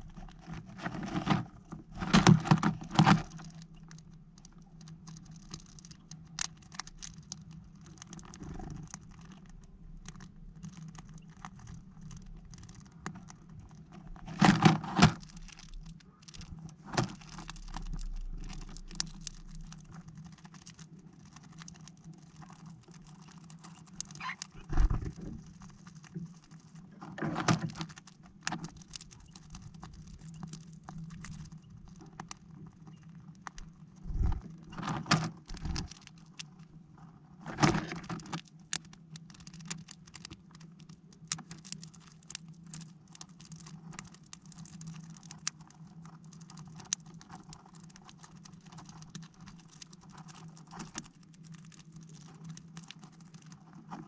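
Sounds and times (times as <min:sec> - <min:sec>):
birds pecking at plastic feeder: 0:00.1 - 0:36.6, 0:37.5 - 0:54.0
steady low hum: 0:33.8 - 0:34.8.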